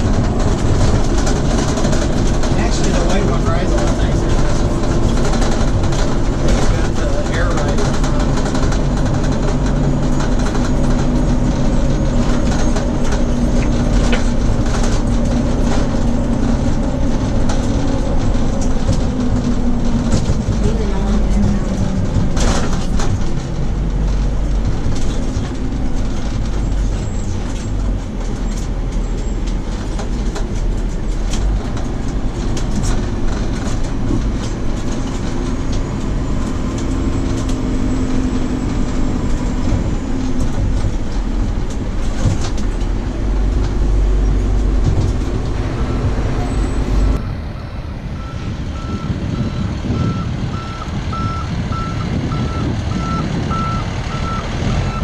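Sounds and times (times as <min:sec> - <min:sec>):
knocks and rattles: 0:00.0 - 0:47.2
truck engine and road rumble: 0:00.0 - 0:55.0
reversing beeper: 0:45.8 - 0:55.0.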